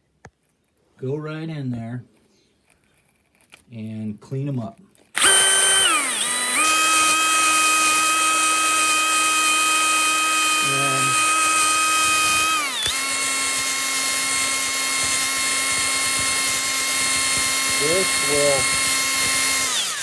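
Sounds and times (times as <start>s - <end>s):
rotary tool whining: 5.1s - 20.0s.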